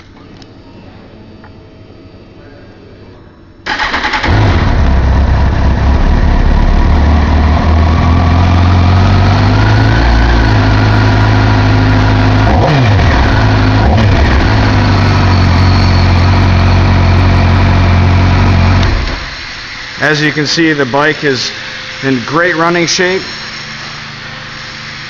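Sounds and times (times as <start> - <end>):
motorcycle engine idling and revving: 3.7 - 20.0.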